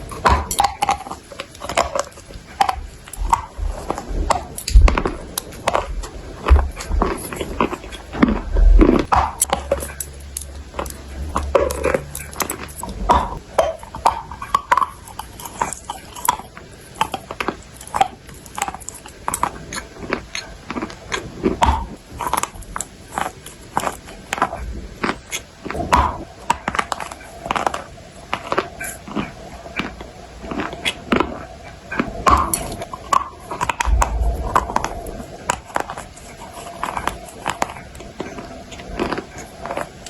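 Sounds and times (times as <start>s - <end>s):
person chewing clay with crunches: 0.0s - 40.0s.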